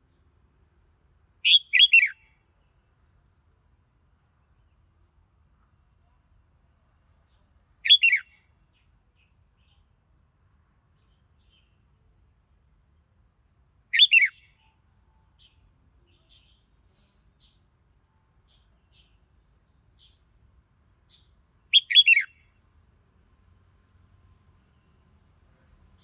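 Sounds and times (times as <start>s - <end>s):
bird whistled phrases: 1.4s - 2.2s, 7.8s - 8.3s, 13.9s - 14.4s, 21.7s - 22.3s.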